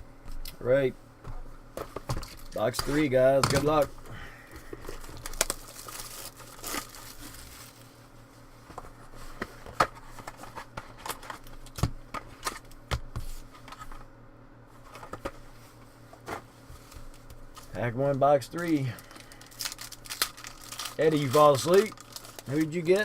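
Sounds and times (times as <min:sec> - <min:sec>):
plastic wrap crinkling and tearing: 0:04.9 - 0:07.9, 0:18.6 - 0:23.0.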